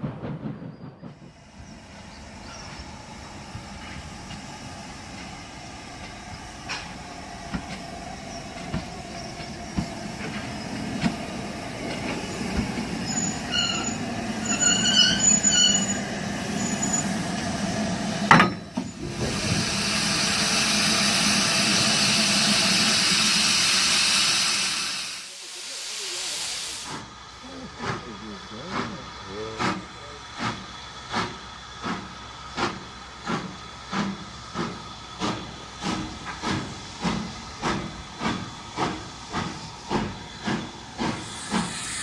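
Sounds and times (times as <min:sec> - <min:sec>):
model train rumbling on track: 0:00.0 - 0:42.0
rail-joint clicks: 0:05.1 - 0:19.6
high squeals: 0:13.0 - 0:17.3
loud steady hiss: 0:19.2 - 0:27.2, 0:40.8 - 0:42.0.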